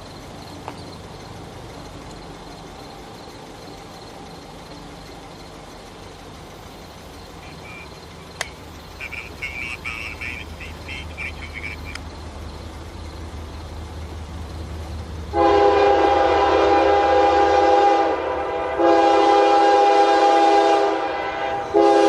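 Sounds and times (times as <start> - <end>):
steady low rumble: 0.0 - 15.4
loud irregular chirping calls: 6.5 - 13.7
sharp click: 8.4 - 8.6.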